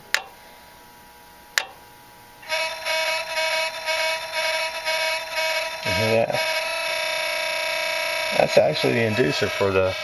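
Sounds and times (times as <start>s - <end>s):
relay buzzing with pulsing tone: 1.5s - 10.0s.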